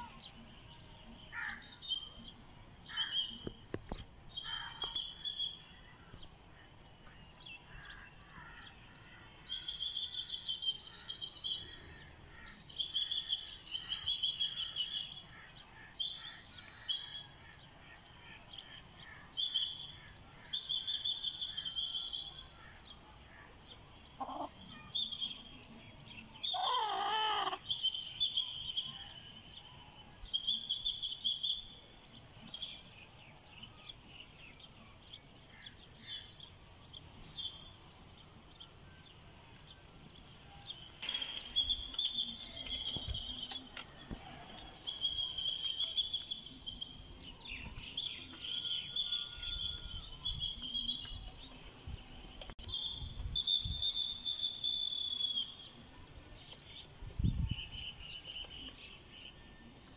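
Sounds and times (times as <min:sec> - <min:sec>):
birds chirping: 0:00.0 - 0:59.9
loud wavering bird call: 0:26.5 - 0:27.7.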